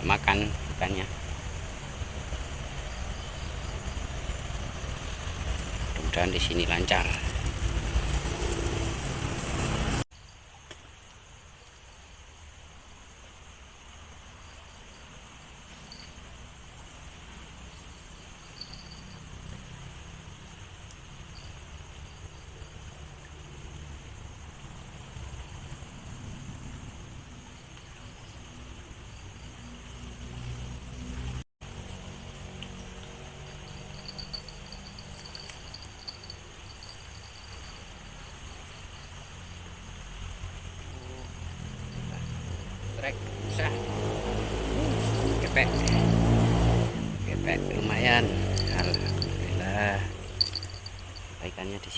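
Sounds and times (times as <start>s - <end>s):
insects chirring: 0.0s - 8.9s, 10.1s - 51.9s
passing vehicle engine hum: 0.0s - 10.0s, 29.4s - 38.2s, 38.9s - 51.2s
short insect chirps: 10.1s - 24.4s, 31.8s - 43.8s, 47.7s - 51.9s
steady hiss: 32.0s - 43.4s.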